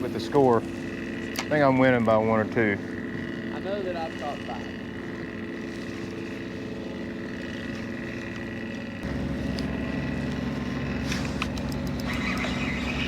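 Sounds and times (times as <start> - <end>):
boat motor running: 0.0 - 13.0
high whine: 8.7 - 13.0.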